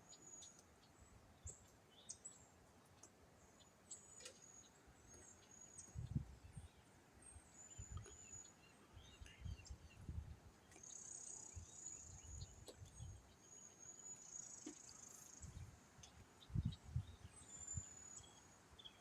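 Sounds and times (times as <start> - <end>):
wind buffeting microphone: 5.8 - 6.6, 9.4 - 10.4, 16.4 - 17.9.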